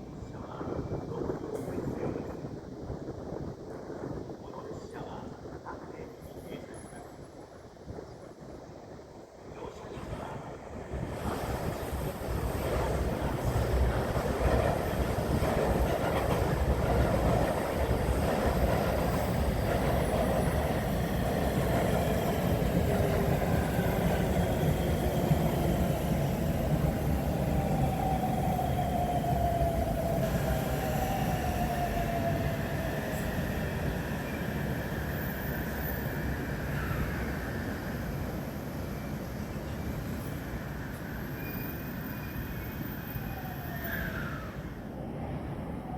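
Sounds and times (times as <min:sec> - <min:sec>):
train wheels rumbling on rails: 0:10.2 - 0:42.6.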